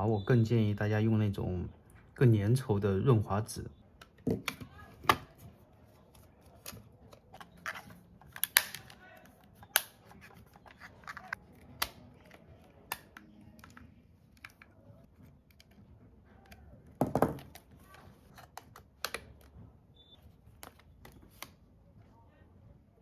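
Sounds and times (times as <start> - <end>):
plastic parts clicking: 6.1 - 14.7.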